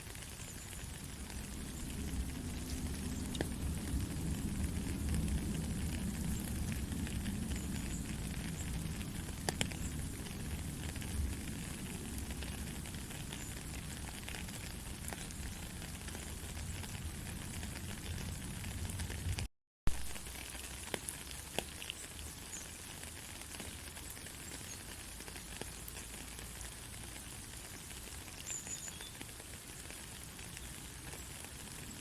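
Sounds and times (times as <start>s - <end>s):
gentle rain pattering: 0.0s - 32.0s
low rumble: 1.0s - 19.5s.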